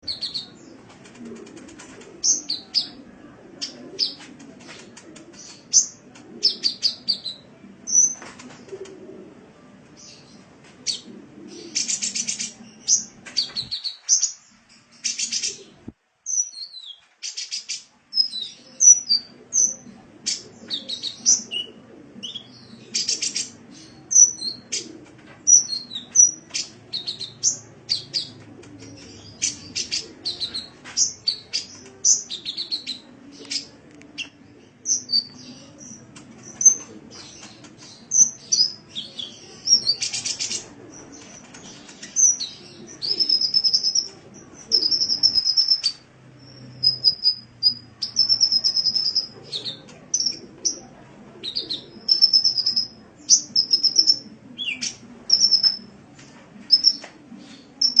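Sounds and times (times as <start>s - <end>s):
sunbird singing: 37.4s - 55.9s, 56.7s - 57.0s, 57.8s - 58.0s.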